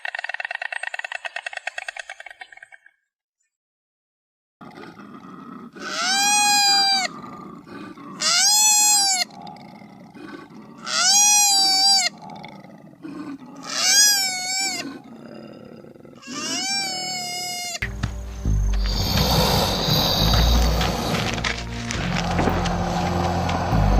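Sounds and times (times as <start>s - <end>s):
animal calling loudly: 5.7s - 9.4s, 10.7s - 12.4s, 13.0s - 15.1s, 16.2s - 17.8s, 18.8s - 23.9s.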